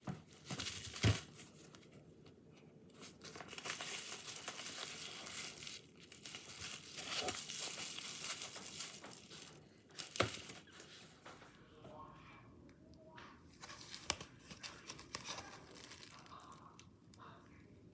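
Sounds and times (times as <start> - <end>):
package crinkling and tearing: 0.3 - 1.9, 3.0 - 11.0, 13.6 - 16.9.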